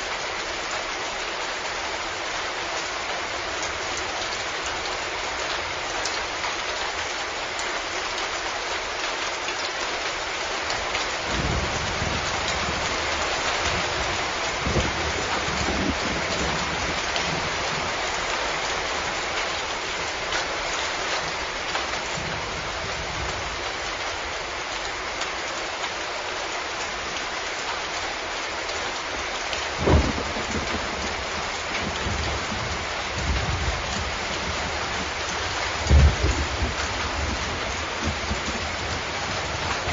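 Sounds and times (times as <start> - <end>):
heavy rain hissing: 9.6 - 39.9
low rumbles of thunder: 11.3 - 18.0, 29.7 - 39.9.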